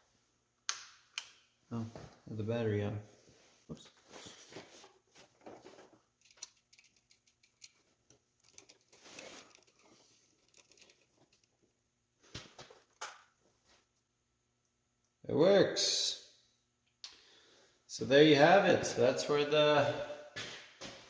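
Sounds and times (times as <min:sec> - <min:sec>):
rustling: 0:03.3 - 0:14.1.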